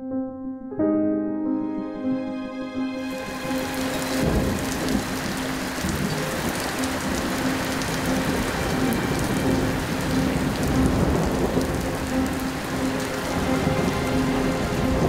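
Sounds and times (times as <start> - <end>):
steady rain falling: 3.0 - 15.0
raindrop ticks: 3.6 - 15.0.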